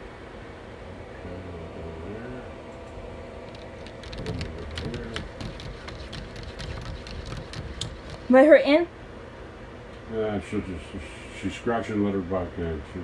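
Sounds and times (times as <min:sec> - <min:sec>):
cat scratching at a door: 0:03.5 - 0:08.4.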